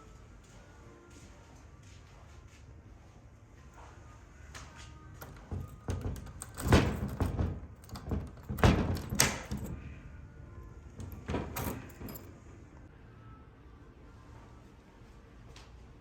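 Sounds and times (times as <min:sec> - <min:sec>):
sliding door opening and shutting: 0:05.2 - 0:09.9, 0:11.0 - 0:12.6
knocks and thuds: 0:05.4 - 0:09.8.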